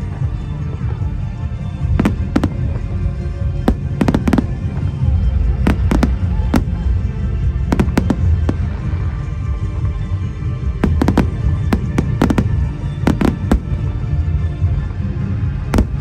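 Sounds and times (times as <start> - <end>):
fireworks bursting: 1.9 - 9.4, 10.8 - 14.1, 15.8 - 16.0.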